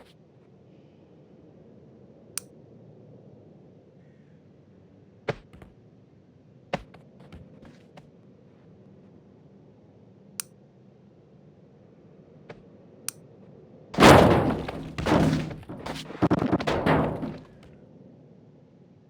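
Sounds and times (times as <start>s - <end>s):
tree crashing to ground: 14.0s - 17.6s.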